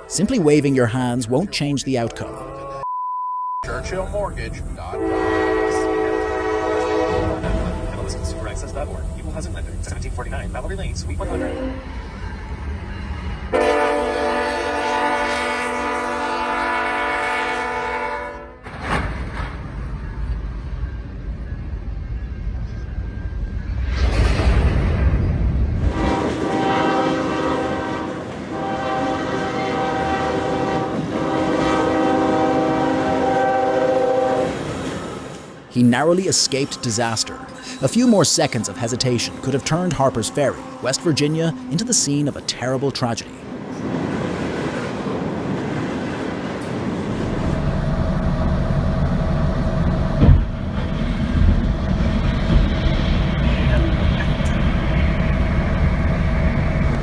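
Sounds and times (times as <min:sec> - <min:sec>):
train rumbling past: 0:03.7 - 0:57.0
train horn blowing: 0:04.9 - 0:08.8, 0:11.2 - 0:12.0, 0:13.5 - 0:18.7, 0:25.8 - 0:34.6
low thud: 0:50.2 - 0:50.6.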